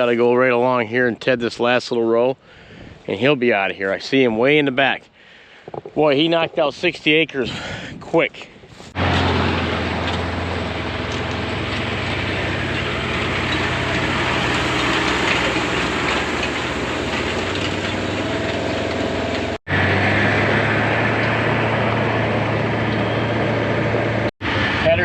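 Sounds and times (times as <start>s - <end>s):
farm vehicle engine humming: 8.9s - 25.0s.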